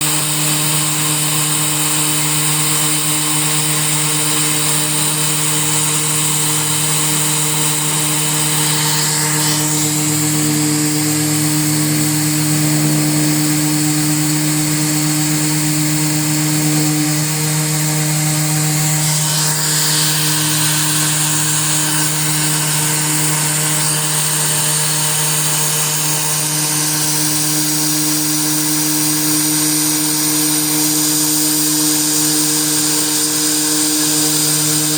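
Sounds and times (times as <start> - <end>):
router spindle whine: 0.0 - 34.9
high cutting hiss: 0.1 - 34.9.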